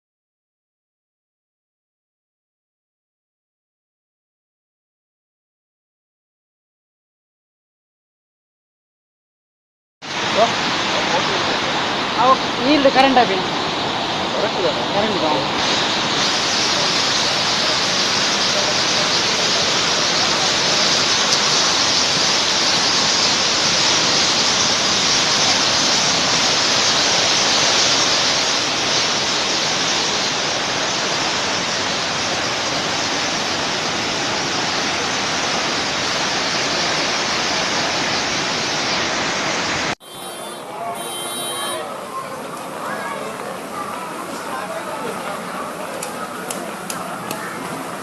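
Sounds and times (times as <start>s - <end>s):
heavy rain falling: 10.0s - 48.0s.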